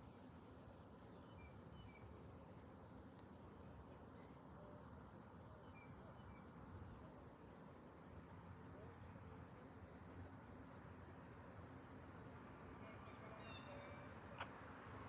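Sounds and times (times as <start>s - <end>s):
high-pitched insect chorus: 0.0s - 15.0s
faint bird chirps: 5.6s - 6.5s, 12.8s - 14.1s.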